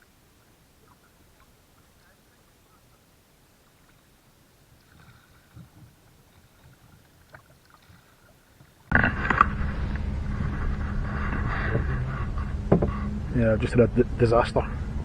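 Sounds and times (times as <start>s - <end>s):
loud rumbling noise with low hum: 8.9s - 15.0s
faint knocks: 11.2s - 13.2s.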